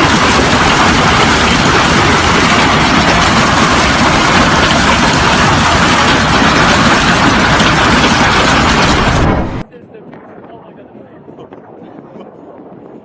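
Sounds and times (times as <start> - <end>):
large hailstones pounding down: 0.0 - 9.6.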